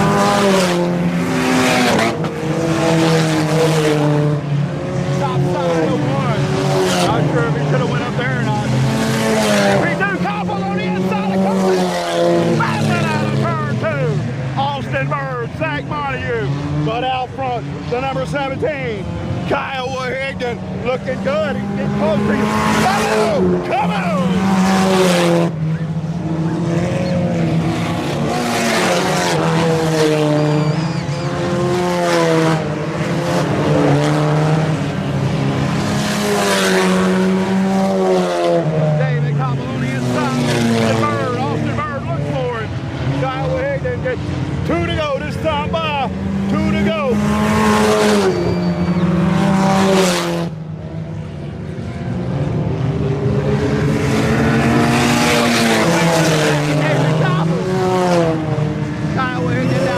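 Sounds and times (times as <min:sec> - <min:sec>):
race car engines: 0:00.0 - 0:59.9.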